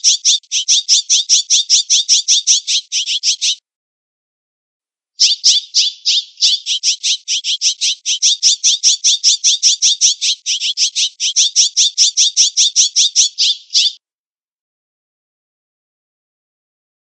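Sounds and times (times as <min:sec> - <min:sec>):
jay squawking: 0:00.0 - 0:03.6, 0:05.2 - 0:14.0.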